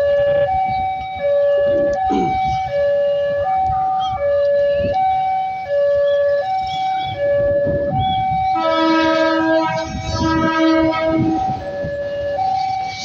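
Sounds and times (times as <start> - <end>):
level crossing two-tone alarm: 0.0 - 13.0
train rumble: 6.6 - 13.0
train horn chord: 8.6 - 11.6.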